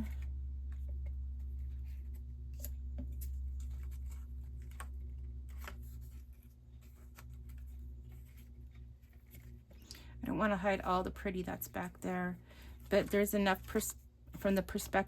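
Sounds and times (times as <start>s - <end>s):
low electrical hum: 0.0s - 15.0s
paper rustling: 1.4s - 9.8s.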